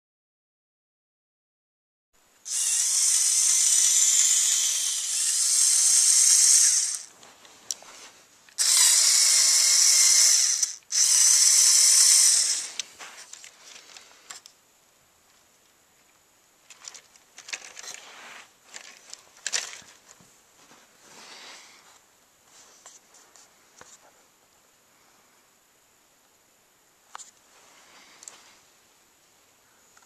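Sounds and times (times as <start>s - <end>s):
toy truck motors whirring: 2.5s - 7.1s, 8.6s - 14.5s.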